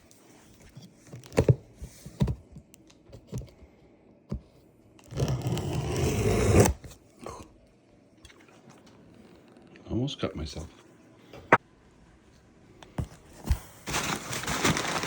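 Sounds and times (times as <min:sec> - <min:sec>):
loud scraping and tearing tape: 0:05.0 - 0:06.9.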